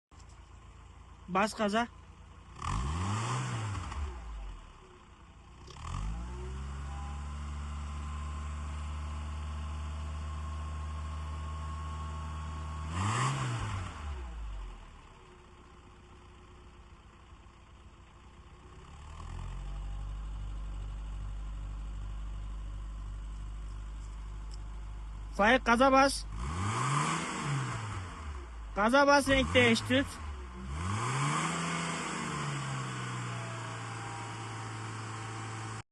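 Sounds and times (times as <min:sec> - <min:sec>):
car engine revving: 0:02.4 - 0:10.0, 0:10.9 - 0:15.0, 0:24.5 - 0:35.8.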